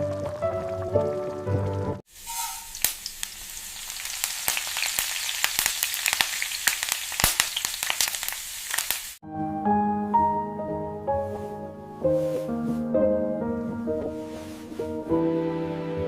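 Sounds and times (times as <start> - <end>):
soft piano music: 0.0 - 2.0, 9.2 - 16.0
food sizzling in hot oil: 2.0 - 9.2.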